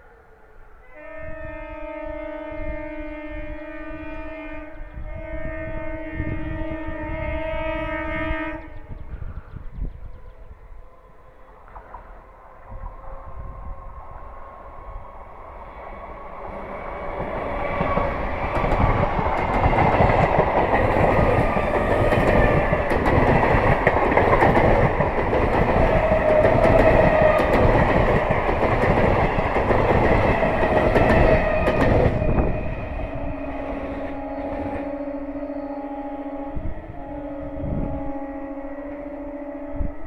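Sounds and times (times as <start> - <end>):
wheels rumbling on rail: 11.3 - 39.0
clickety-clack of rail joints: 11.6 - 12.4, 16.6 - 32.4.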